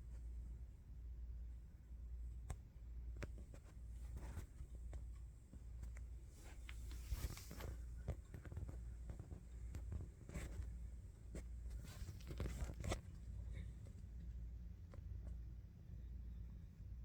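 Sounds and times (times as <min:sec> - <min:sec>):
low steady hum: 0:00.0 - 0:17.0
clicks rustles and scrapes: 0:03.2 - 0:14.0.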